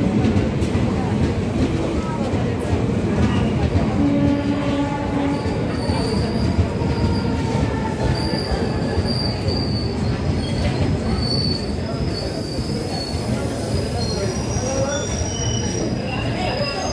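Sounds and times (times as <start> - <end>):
train coaches rumbling past: 0.0 - 16.9
high metal wheel squeal: 5.3 - 16.9.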